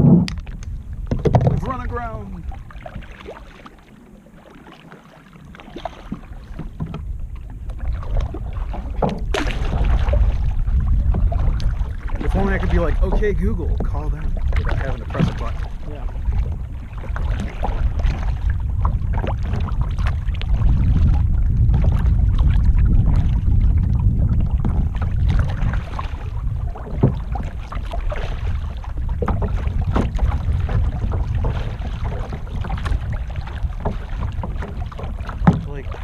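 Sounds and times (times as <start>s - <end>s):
wind on microphone: 0.0s - 3.5s, 5.4s - 36.0s
paddle strokes splashing: 0.0s - 36.0s.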